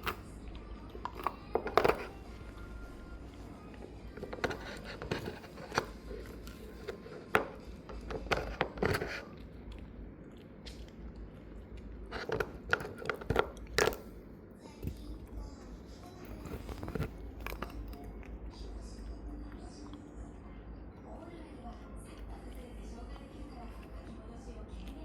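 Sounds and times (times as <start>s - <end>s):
dog gnawing on a bone: 0.0s - 14.2s, 16.2s - 20.1s
steady low hum: 0.0s - 25.0s.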